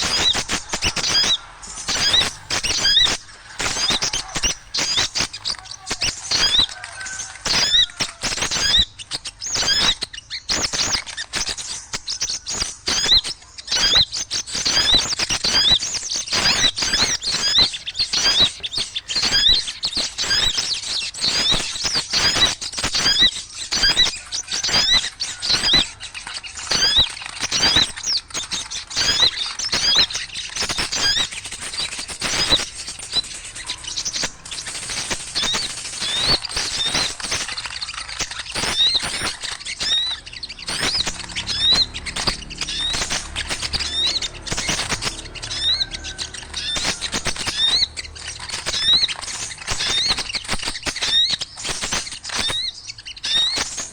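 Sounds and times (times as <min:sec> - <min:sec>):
small birds chattering: 0:00.0 - 0:53.9
sharp clicks: 0:14.7 - 0:53.9.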